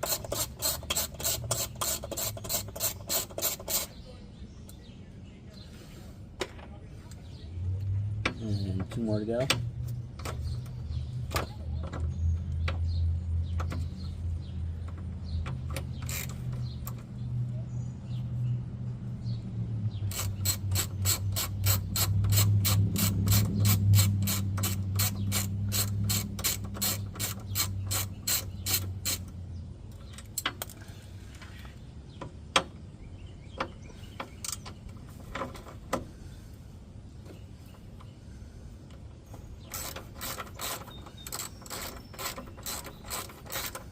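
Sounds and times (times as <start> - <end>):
hand ratchet clicking: 0.0 - 3.9, 15.5 - 16.6, 20.1 - 29.3, 39.6 - 43.9.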